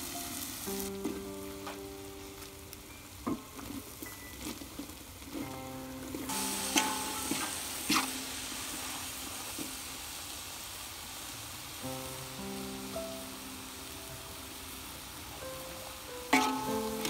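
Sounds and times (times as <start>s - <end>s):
background music: 0.0s - 9.7s, 11.8s - 17.0s
food sizzling in pan: 0.0s - 17.0s
stirring clinks: 16.3s - 17.0s.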